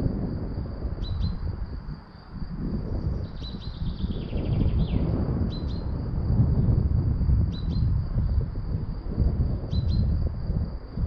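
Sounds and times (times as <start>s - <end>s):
gusty wind on microphone: 0.0s - 11.0s
songbird calling: 1.0s - 1.4s, 3.0s - 5.9s, 7.5s - 7.9s, 9.7s - 10.1s.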